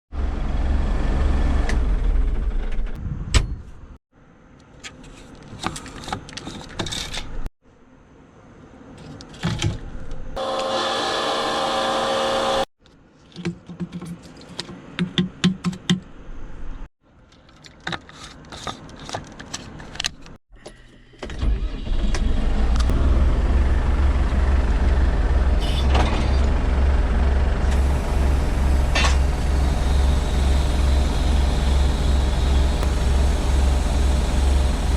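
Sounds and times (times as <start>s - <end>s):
vehicle engine drone: 0.2s - 3.0s, 21.8s - 34.9s.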